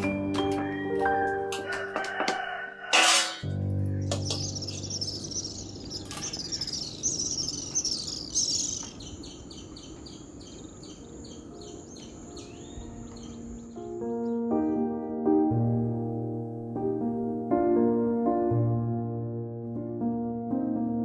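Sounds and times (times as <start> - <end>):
birds chirping and singing: 3.8 - 14.9.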